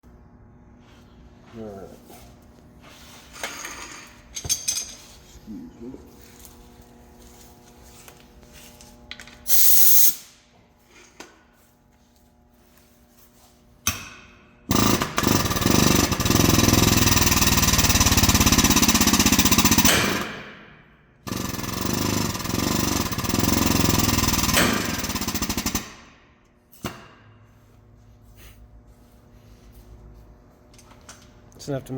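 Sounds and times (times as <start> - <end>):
pneumatic tool hammering: 9.4 - 10.4, 13.8 - 27.3.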